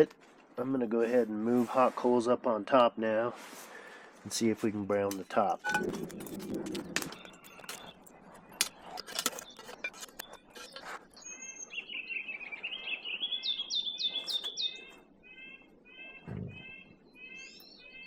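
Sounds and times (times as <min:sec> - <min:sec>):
coals clinking and knocking: 0:04.3 - 0:11.2
songbird chirping: 0:05.1 - 0:18.0.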